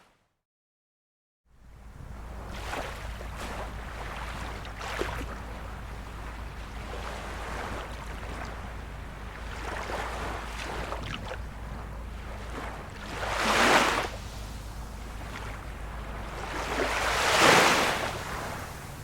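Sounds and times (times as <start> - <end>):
low rumble: 1.6 - 19.0
small waves lapping: 1.6 - 19.0.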